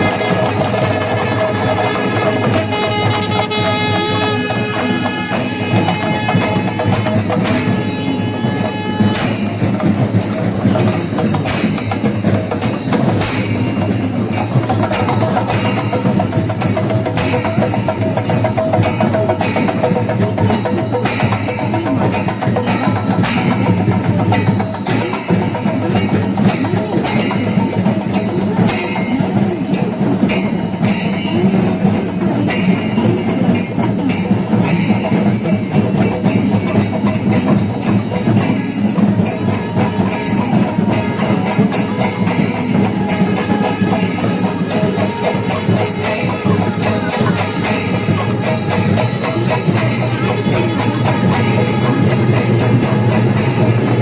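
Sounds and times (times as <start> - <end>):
drums: 0.0 - 54.0
small hand cymbals: 0.0 - 54.0.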